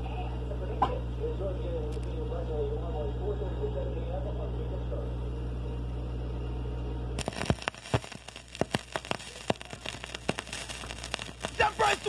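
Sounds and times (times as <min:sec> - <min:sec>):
electrical hum: 0:00.0 - 0:12.0
record crackling and popping: 0:07.1 - 0:12.0.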